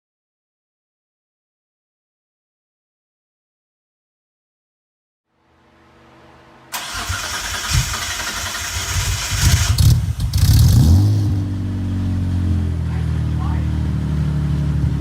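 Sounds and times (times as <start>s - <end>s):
car engine idling: 6.0s - 15.0s
starter motor cranking: 6.8s - 10.0s.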